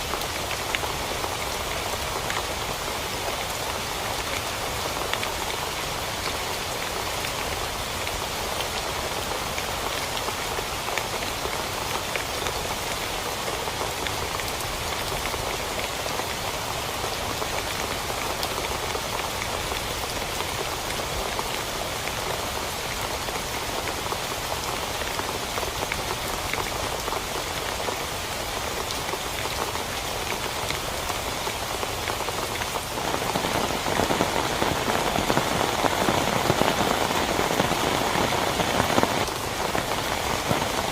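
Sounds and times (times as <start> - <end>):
rain on a tent: 0.0 - 40.9.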